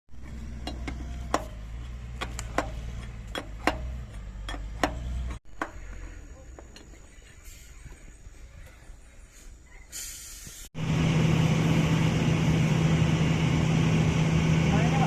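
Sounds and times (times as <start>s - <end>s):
low machine hum: 10.8s - 15.0s.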